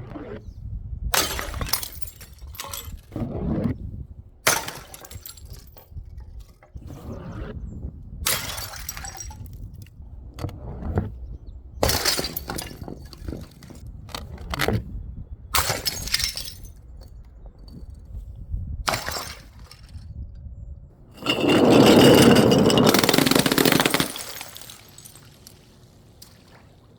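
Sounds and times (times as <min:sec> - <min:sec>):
glass bottles shattering: 0:01.2 - 0:03.0, 0:04.5 - 0:05.9, 0:08.3 - 0:09.5, 0:11.8 - 0:13.8, 0:15.6 - 0:16.8, 0:18.9 - 0:20.0, 0:21.2 - 0:25.8
glass clinks and knocks: 0:21.2 - 0:25.2.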